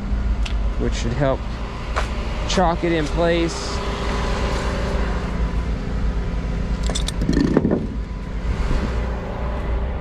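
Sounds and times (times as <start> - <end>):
wooden block clatter and knock: 6.9 - 8.0.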